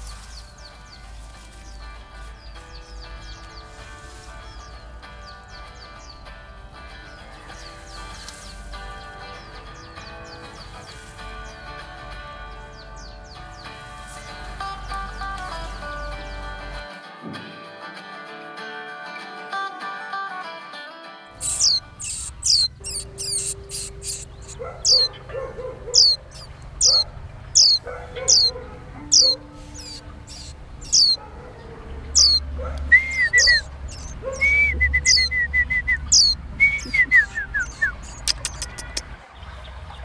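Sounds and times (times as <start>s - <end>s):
bird chirping high calls: 0.0s - 11.7s, 21.4s - 39.2s
bird warbling and trilling: 0.0s - 11.7s, 21.4s - 39.2s
guitar music: 0.0s - 39.2s
sharp clicks: 38.2s - 39.1s.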